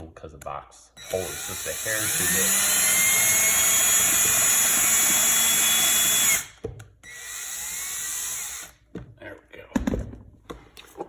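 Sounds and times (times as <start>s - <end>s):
cordless drill driving a screw: 1.0s - 8.8s.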